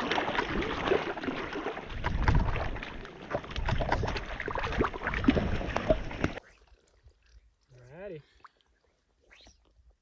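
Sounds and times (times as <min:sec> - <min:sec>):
water sloshing and splashing: 0:00.0 - 0:07.7.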